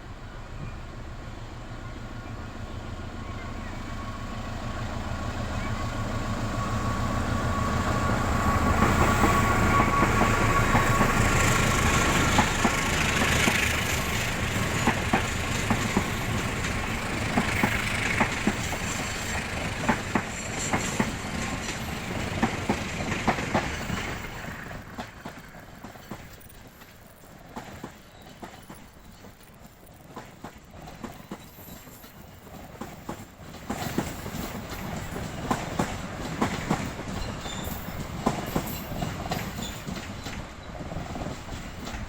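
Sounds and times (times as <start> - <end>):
train rumbling past: 0.0 - 42.0
wheel clacks over rail joints: 8.7 - 42.0.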